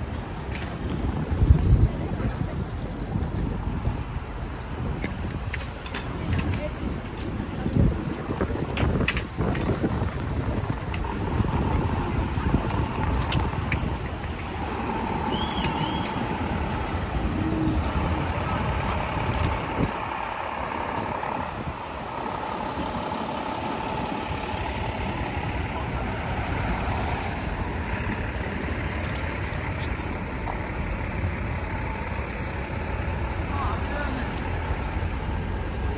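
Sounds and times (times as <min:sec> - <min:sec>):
traffic rumble: 0:00.0 - 0:35.9
brief high squeals: 0:28.5 - 0:31.7.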